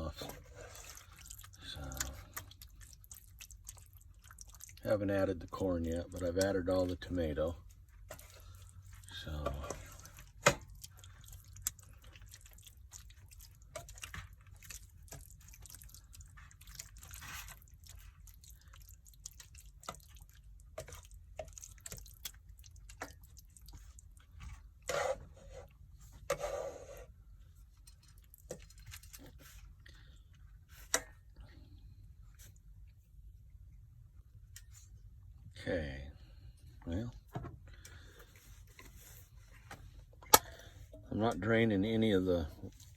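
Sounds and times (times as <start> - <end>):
low steady hum: 0.0 - 42.9
stew bubbling and popping: 0.3 - 7.0, 7.6 - 24.9.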